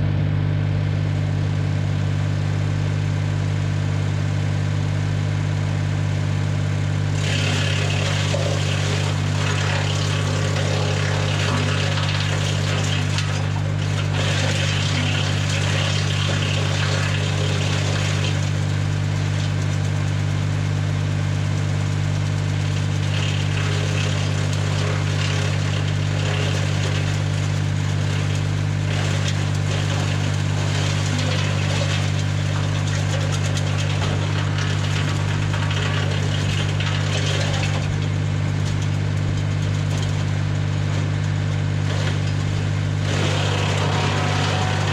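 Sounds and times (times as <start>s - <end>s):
wood chipper hissing and rattling: 1.0s - 44.9s
tractor engine running: 9.0s - 44.9s.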